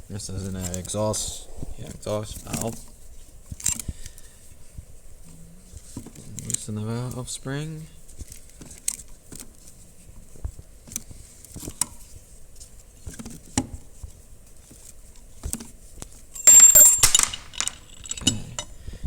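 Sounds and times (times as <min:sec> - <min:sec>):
light metal clicks and knocks: 0:15.4 - 0:18.8
metallic clatter with ringing: 0:16.4 - 0:18.7.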